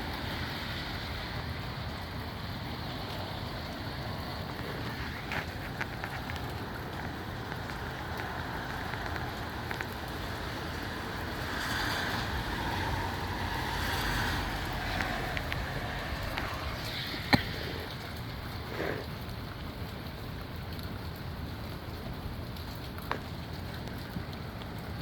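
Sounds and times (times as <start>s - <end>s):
rain hissing: 0.0s - 25.0s
wind buffeting microphone: 0.0s - 25.0s.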